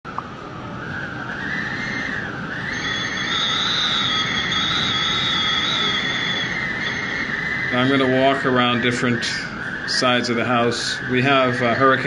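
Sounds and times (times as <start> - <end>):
wind howling around a house: 0.1 - 12.0.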